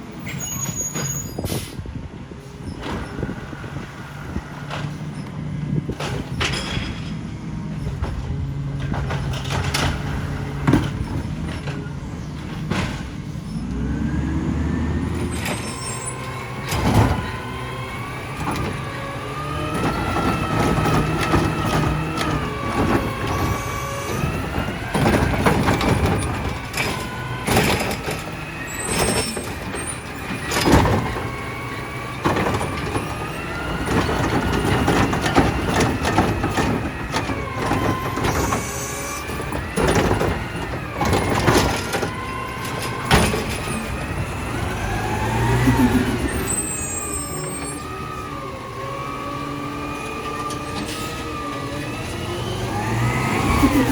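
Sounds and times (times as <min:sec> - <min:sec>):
air brakes hissing: 0:00.2 - 0:05.2
diesel engine revving: 0:01.4 - 0:53.9
metal bangs and clanks: 0:05.8 - 0:13.7, 0:14.8 - 0:48.5.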